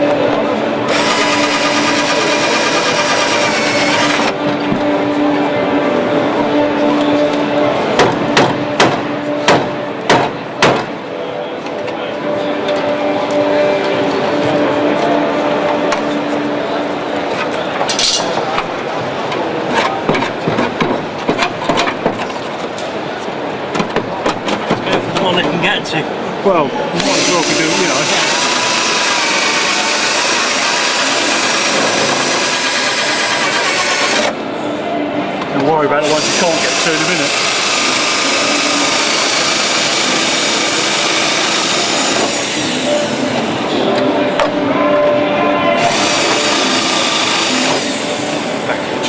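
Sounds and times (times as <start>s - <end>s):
background hubbub: 0.0s - 49.0s
power tool on steel bodywork: 0.8s - 4.4s, 27.0s - 34.3s, 36.0s - 43.6s, 45.8s - 48.7s.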